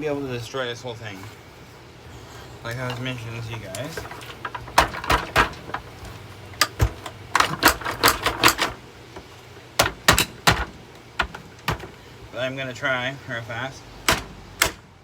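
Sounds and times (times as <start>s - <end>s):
vacuum cleaner body clacking: 2.6s - 12.3s, 14.0s - 15.0s.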